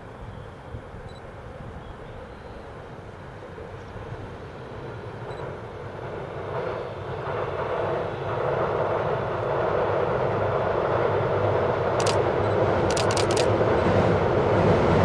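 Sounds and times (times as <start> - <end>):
train rumble: 0.0 - 15.0
sharp clicking: 11.9 - 13.6.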